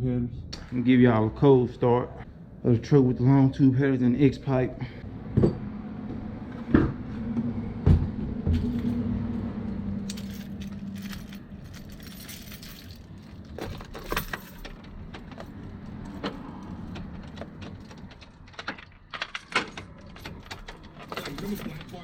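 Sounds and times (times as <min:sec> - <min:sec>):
keys jangling: 0:10.0 - 0:22.0.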